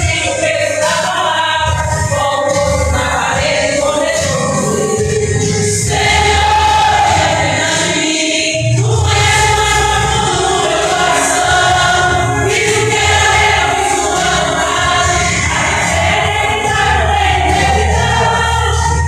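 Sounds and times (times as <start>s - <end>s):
accompanying music: 0.0s - 19.0s
gospel choir singing a hymn: 0.0s - 19.0s.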